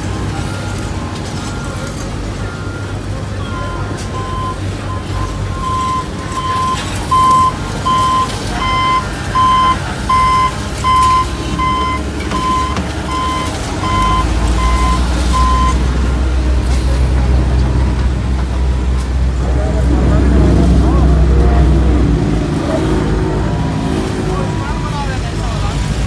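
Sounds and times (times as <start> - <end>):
reversing alarm beeping: 0.0 - 17.0
diesel engine running: 0.0 - 26.0.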